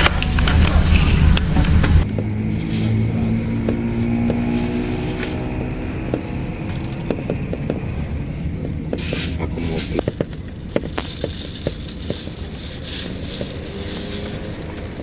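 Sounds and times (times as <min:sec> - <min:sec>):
coach cabin rumble: 0:00.0 - 0:15.0
cabin fittings rattling: 0:04.0 - 0:10.0.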